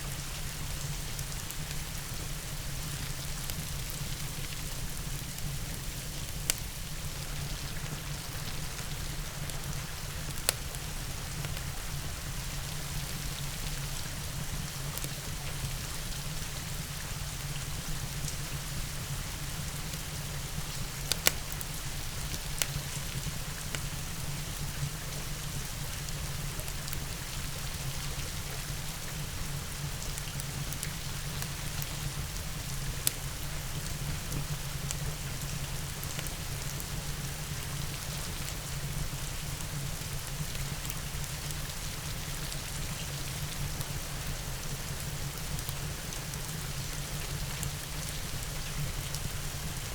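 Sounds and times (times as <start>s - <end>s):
steady rain falling: 0.0s - 49.9s
wood fire crackling pops: 3.1s - 11.7s, 19.8s - 24.6s.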